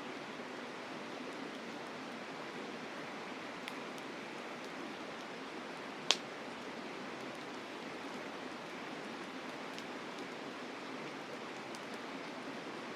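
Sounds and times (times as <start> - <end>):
campfire crackling: 3.4 - 12.6.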